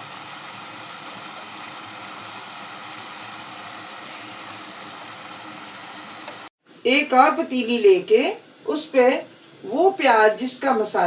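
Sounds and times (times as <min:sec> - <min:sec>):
vegetables sizzling in a pot: 0:00.0 - 0:06.5.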